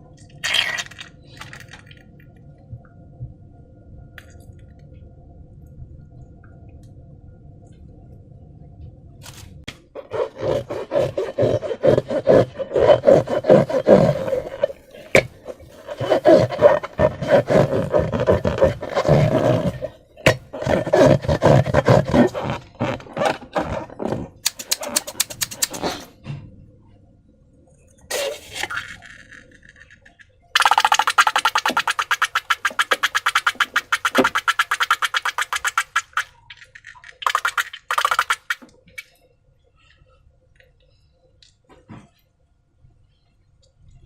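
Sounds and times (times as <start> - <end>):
faint steady hum: 0.0 - 44.0
slime squelching: 10.0 - 26.1, 30.6 - 38.6.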